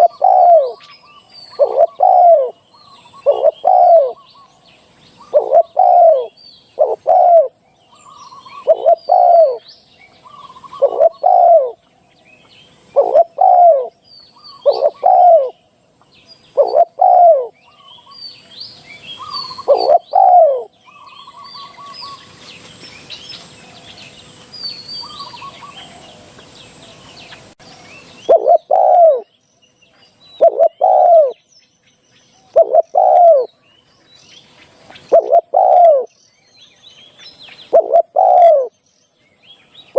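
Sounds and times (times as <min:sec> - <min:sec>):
dove cooing: 0:00.0 - 0:00.9, 0:01.5 - 0:04.3, 0:05.2 - 0:11.8, 0:12.8 - 0:15.6, 0:16.5 - 0:18.2, 0:19.0 - 0:22.2, 0:28.2 - 0:29.3, 0:30.4 - 0:31.4, 0:32.5 - 0:33.5, 0:35.0 - 0:36.1, 0:37.7 - 0:38.7
faint hiss: 0:00.0 - 0:28.8
small birds chirping: 0:00.0 - 0:39.9.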